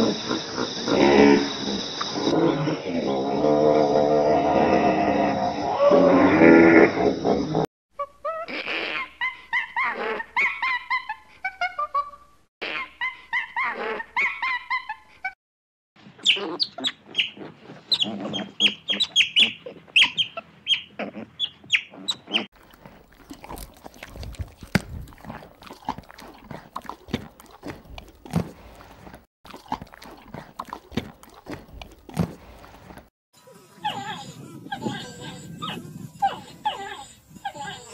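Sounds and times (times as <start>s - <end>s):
monkey high chirping calls: 16.2s - 22.5s, 33.8s - 37.9s
monkey squeaky calls: 16.2s - 22.5s, 33.8s - 37.9s
pony tearing and chewing grass: 22.5s - 33.1s.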